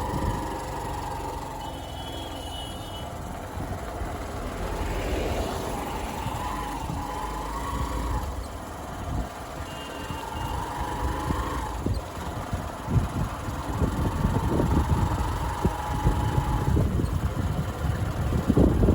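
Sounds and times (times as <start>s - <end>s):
motorcycle engine running: 0.0s - 18.9s
wind and road rumble: 0.0s - 18.9s.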